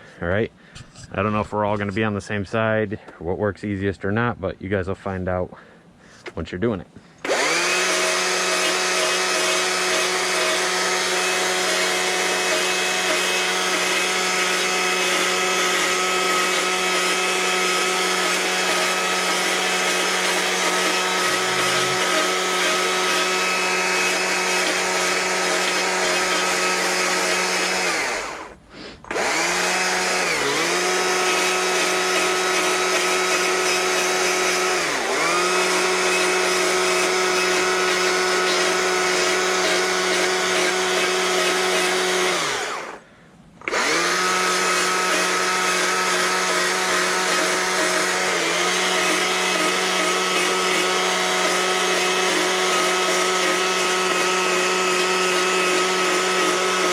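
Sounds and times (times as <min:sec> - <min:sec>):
chainsaw cutting wood at high revs: 0:07.2 - 0:43.0, 0:43.6 - 0:56.9.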